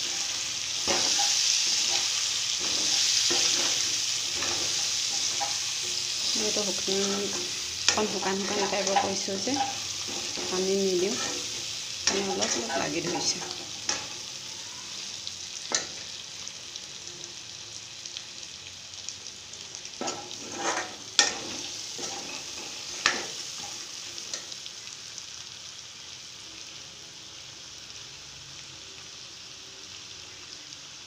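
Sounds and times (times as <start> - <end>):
curry sizzling in a pan: 0.0 - 31.0
ladle scraping and knocking pan: 20.0 - 23.7.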